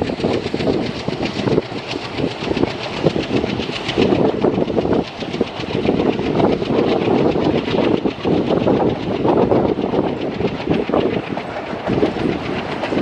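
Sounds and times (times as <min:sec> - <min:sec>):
steady train rumble: 0:00.0 - 0:13.0
train wheels clattering over joints: 0:00.0 - 0:13.0.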